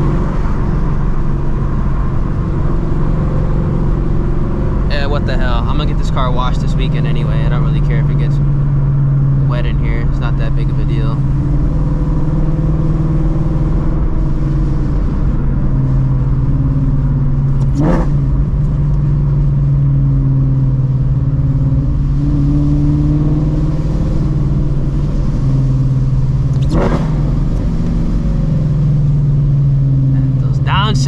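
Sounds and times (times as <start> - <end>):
car engine while driving: 0.0 - 31.0
engine downshift blasts: 0.0 - 31.0.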